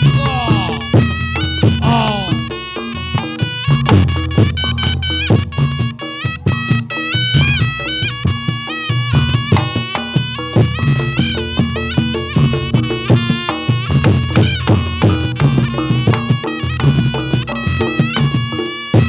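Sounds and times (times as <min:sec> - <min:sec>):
drum strokes: 0:00.0 - 0:04.5
shawm playing reedy melody: 0:00.0 - 0:19.0.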